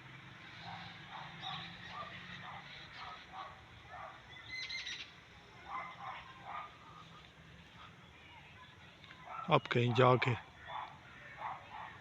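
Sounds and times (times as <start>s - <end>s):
birds giving harsh alarm calls: 0.4s - 5.2s.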